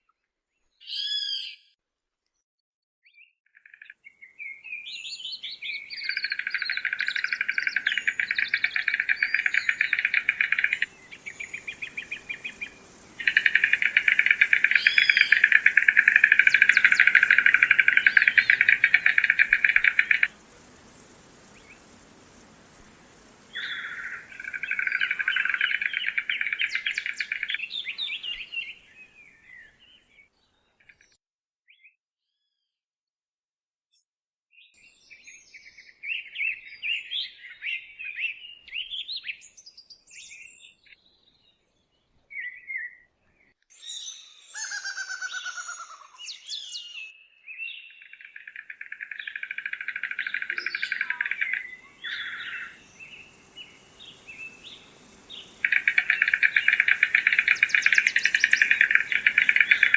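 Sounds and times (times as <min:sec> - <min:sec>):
bird rattling call: 0:05.8 - 0:28.7, 0:48.1 - 0:59.9.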